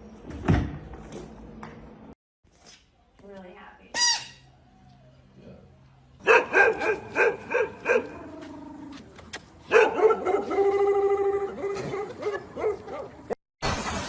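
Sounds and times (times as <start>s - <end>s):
dog barking: 6.2s - 8.2s, 9.7s - 13.2s.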